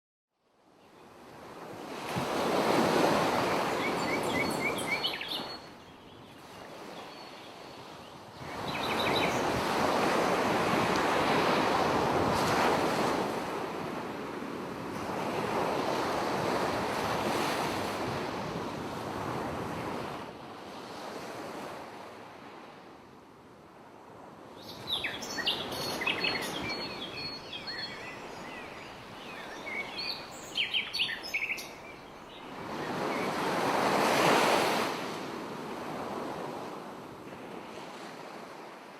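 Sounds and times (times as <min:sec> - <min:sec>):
high chirping calls: 0:24.8 - 0:32.2
sea waves washing in: 0:32.5 - 0:38.9.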